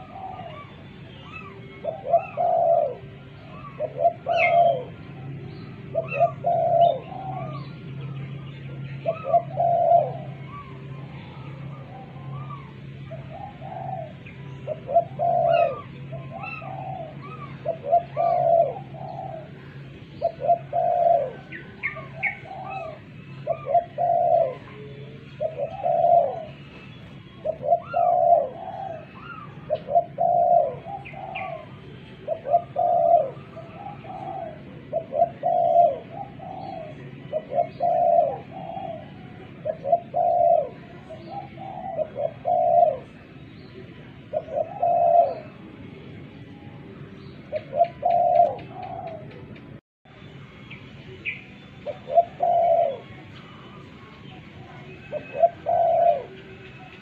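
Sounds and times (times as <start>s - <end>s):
small birds chirping: 0.0s - 45.6s
dove cooing: 0.0s - 45.7s, 47.5s - 49.8s, 51.2s - 57.0s.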